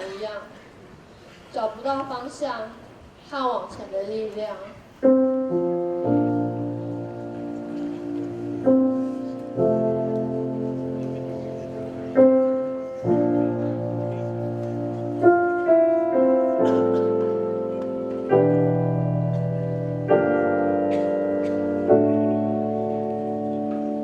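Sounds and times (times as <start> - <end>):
slow piano chords: 5.0 - 24.0.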